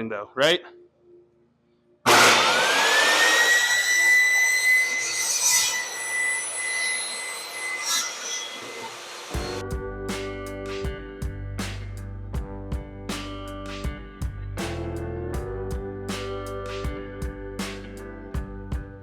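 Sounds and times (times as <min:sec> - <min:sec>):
saw ripping wood: 0:02.1 - 0:09.3
table saw motor whine: 0:02.1 - 0:09.6
guitar music: 0:09.4 - 0:19.0.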